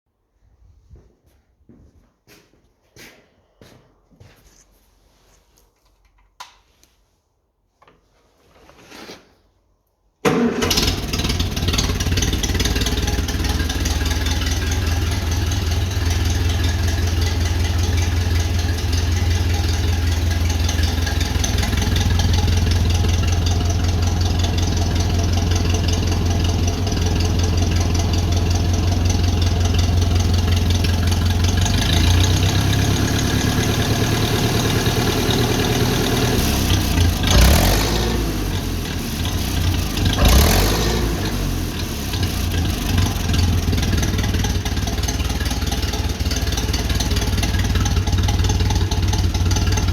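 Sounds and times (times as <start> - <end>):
tractor engine starting and running: 10.2 - 49.9.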